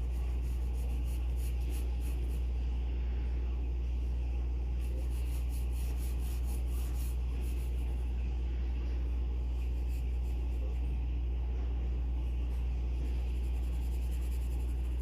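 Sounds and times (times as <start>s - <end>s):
pencil scratching on paper: 0.0s - 2.5s, 4.8s - 8.1s, 9.4s - 10.9s, 12.5s - 15.0s
steady low hum: 0.0s - 15.0s.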